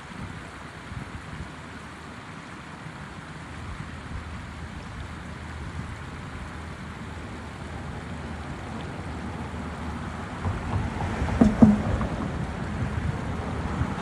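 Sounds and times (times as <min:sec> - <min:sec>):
rushing wind: 0:07.6 - 0:14.0
surf: 0:08.4 - 0:14.0
wind buffeting microphone: 0:08.6 - 0:14.0.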